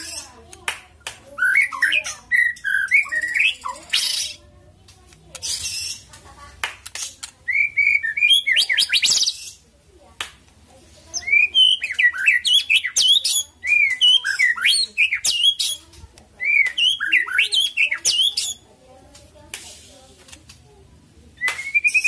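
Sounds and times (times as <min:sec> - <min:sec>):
bird whistled song: 0:01.4 - 0:04.4, 0:07.4 - 0:09.6, 0:11.1 - 0:15.8, 0:16.4 - 0:18.6, 0:21.4 - 0:22.0.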